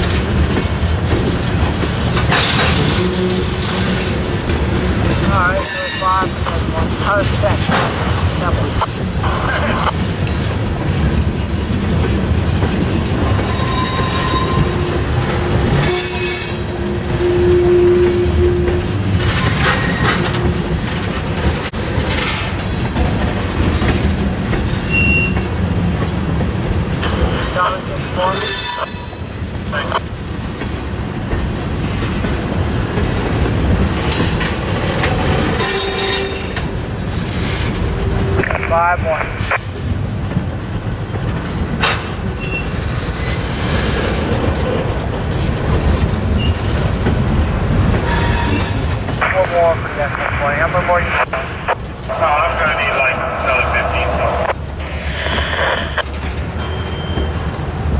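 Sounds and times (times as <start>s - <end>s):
wheels clattering over rail joints: 0.0s - 9.3s, 9.9s - 38.4s, 39.6s - 49.2s
freight train rumbling past: 0.0s - 57.9s
high wheel squeal: 13.1s - 15.0s, 15.7s - 20.2s, 24.7s - 25.4s, 28.3s - 29.3s, 35.6s - 36.9s, 48.0s - 49.0s, 56.6s - 57.4s.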